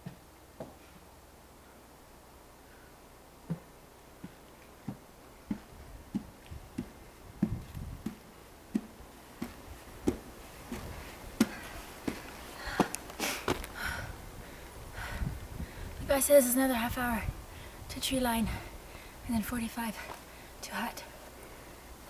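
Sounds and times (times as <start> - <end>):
footsteps on trail: 3.5 - 14.0, 20.0 - 20.3.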